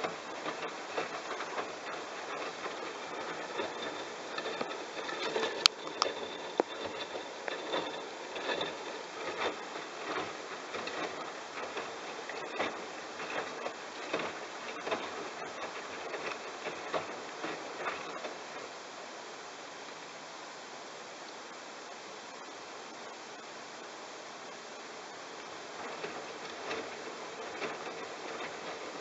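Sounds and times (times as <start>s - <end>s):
washing machine drum with laundry swishing: 0.0s - 20.1s, 24.9s - 29.0s.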